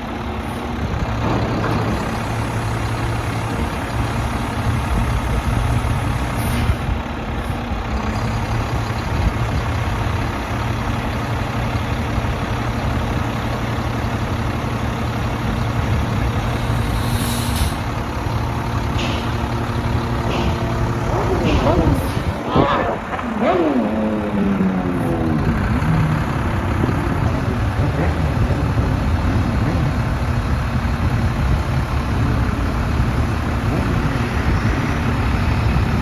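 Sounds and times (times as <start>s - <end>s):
diesel truck engine running: 0.0s - 36.0s
air hisses: 16.6s - 18.0s.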